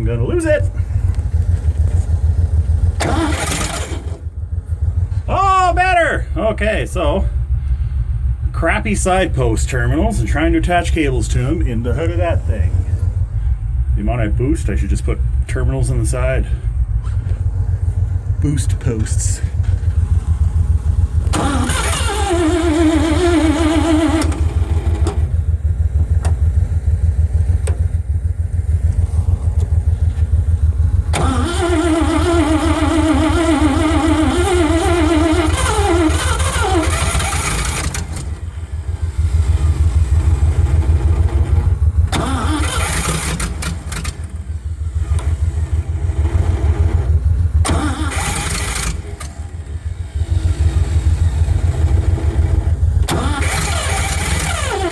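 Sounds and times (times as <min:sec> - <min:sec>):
low engine throb: 0:00.0 - 0:54.9
starter motor cranking: 0:00.8 - 0:04.4, 0:19.1 - 0:26.5, 0:29.5 - 0:54.9.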